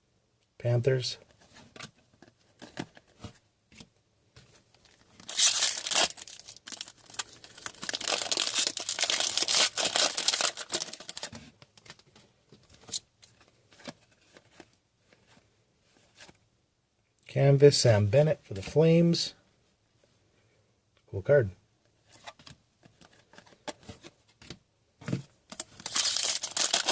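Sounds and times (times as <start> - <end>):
cards being handled: 1.4 - 16.4, 22.1 - 26.9
foil wrapper tearing and crinkling: 5.2 - 11.4, 25.7 - 26.9.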